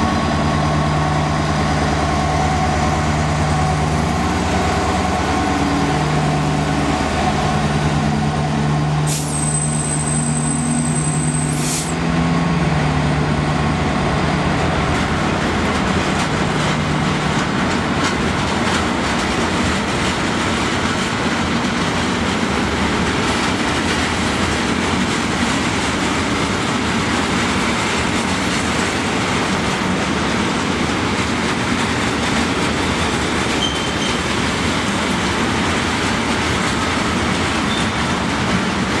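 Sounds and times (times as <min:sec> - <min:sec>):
diesel locomotive engine: 0:00.0 - 0:39.0
train wagons rolling by: 0:00.0 - 0:39.0
high thin squeal: 0:09.1 - 0:12.0.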